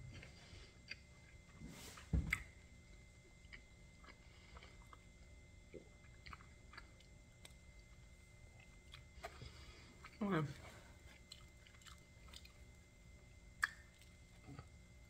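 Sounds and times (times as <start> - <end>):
chewing crispy pizza: 0.0 - 15.0.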